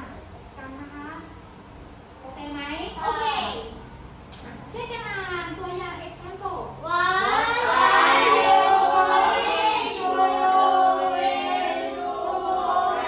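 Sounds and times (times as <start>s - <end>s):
children singing in unison: 7.3s - 13.0s.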